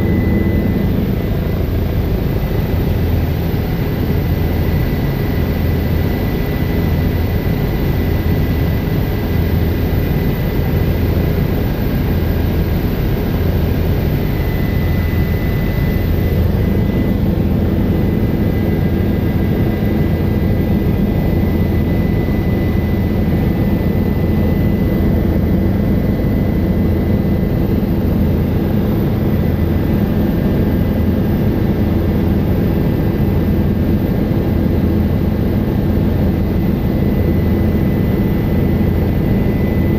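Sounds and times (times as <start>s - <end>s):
high whine: 0.0s - 4.3s
helicopter engine and rotor drone: 0.0s - 39.9s.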